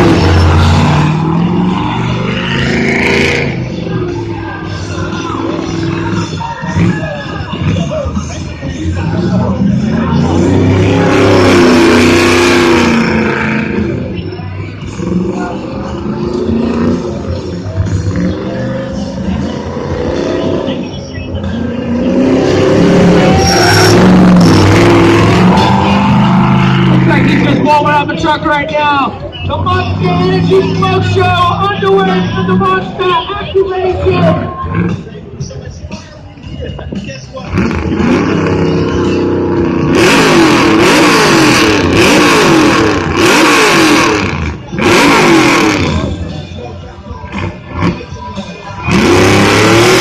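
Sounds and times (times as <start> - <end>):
monster truck engine revving: 0.0 - 33.0, 37.4 - 50.0
loud rushing noise: 21.8 - 28.8.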